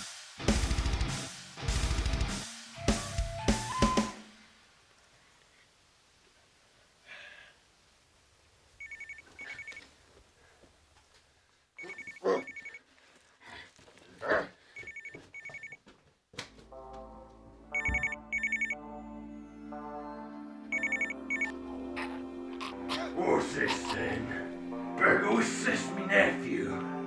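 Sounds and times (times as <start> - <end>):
telephone ringing: 8.8 - 9.8, 11.8 - 12.8, 14.8 - 15.8, 17.7 - 18.8, 20.7 - 21.6
music with sustained chords: 18.8 - 27.0.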